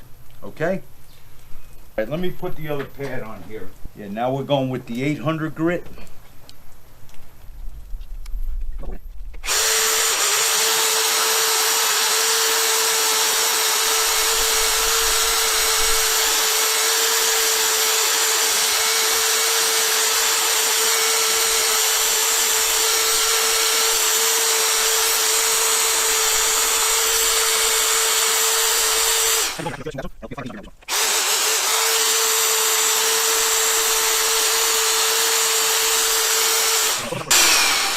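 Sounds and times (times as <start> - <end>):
electric drill running: 9.4 - 29.7, 30.8 - 37.9.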